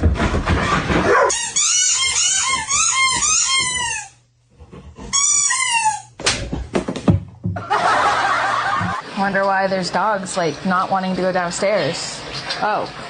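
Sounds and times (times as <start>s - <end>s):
high-pitched animal cries: 5.2s - 6.2s.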